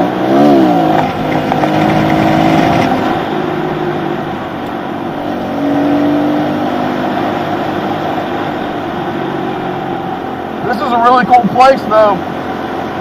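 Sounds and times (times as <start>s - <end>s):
pit bike engine revving: 0.0s - 3.3s.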